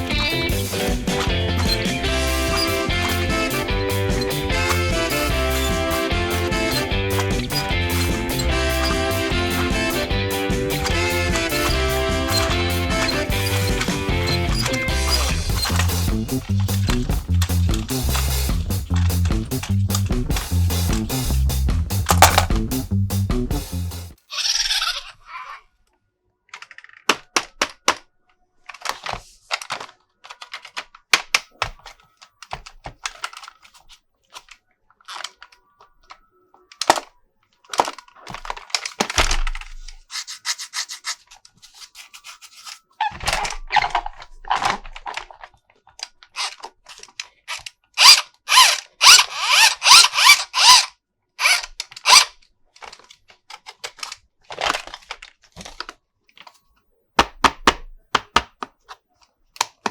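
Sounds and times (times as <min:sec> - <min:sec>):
plastic toy parts clicking: 0:00.0 - 0:21.2, 0:22.0 - 0:22.6, 0:25.8 - 0:59.9
packaging rustling: 0:22.1 - 0:22.7, 0:28.6 - 0:48.0, 0:51.4 - 0:56.7.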